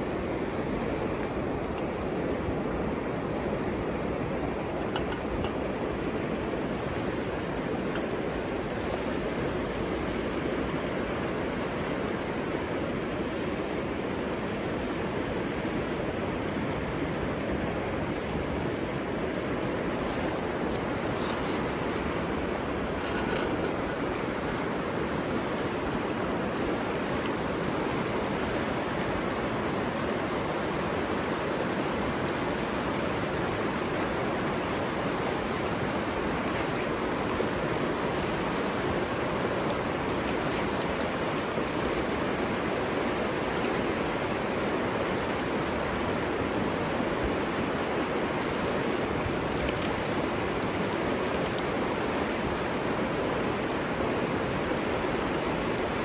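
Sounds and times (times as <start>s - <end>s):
river rushing: 0.0s - 56.0s
faint light ticks: 49.5s - 51.7s.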